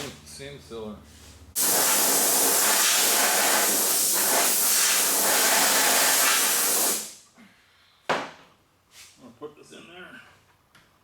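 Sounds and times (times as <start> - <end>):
compressed air hissing: 1.6 - 7.2.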